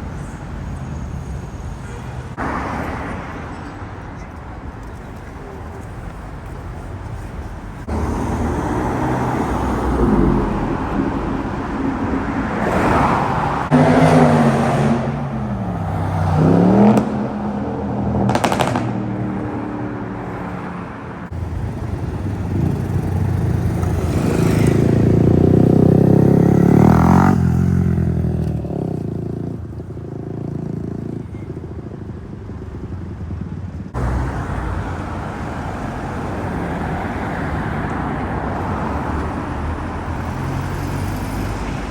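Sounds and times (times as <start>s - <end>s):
car engine passing close: 7.8s - 29.3s, 33.9s - 41.9s
car engine revving: 12.4s - 19.0s.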